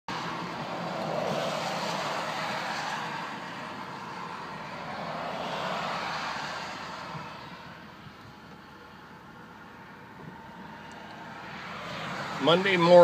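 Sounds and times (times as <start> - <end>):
tyres hissing on wet road: 0.1 - 7.7, 11.5 - 13.0.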